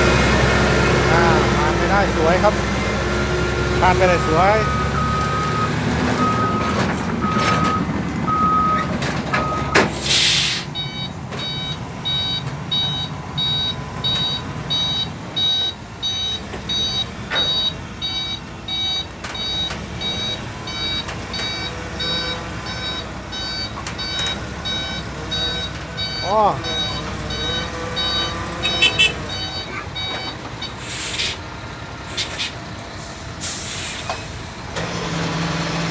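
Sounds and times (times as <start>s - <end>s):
diesel engine running: 0.0s - 35.9s
reversing alarm beeping: 3.8s - 31.4s
air hiss: 10.0s - 10.7s, 30.8s - 31.4s, 32.1s - 34.3s.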